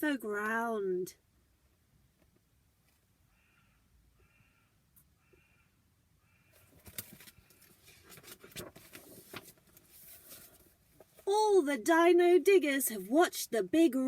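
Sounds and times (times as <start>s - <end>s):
paper rustling: 6.7s - 11.3s.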